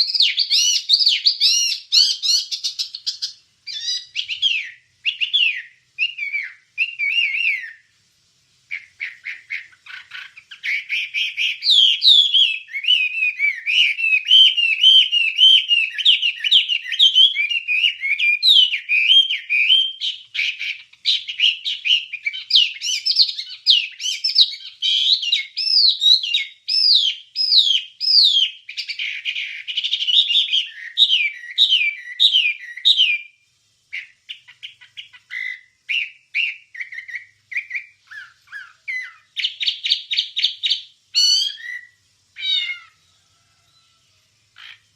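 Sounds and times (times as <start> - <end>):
bird singing whistled notes: 0.0 - 7.9, 8.7 - 43.1.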